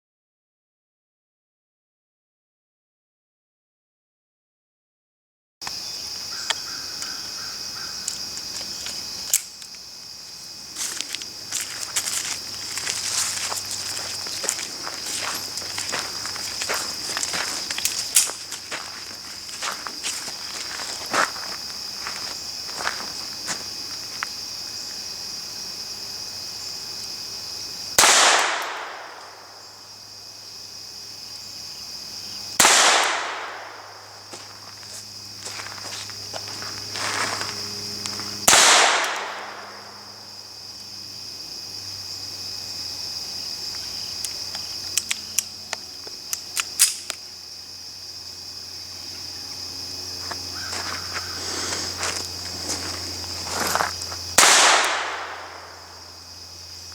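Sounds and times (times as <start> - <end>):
high insect drone: 5.6 - 56.9
rifle shots echoing: 28.0 - 29.6, 32.6 - 34.2, 38.5 - 40.0, 54.4 - 56.0.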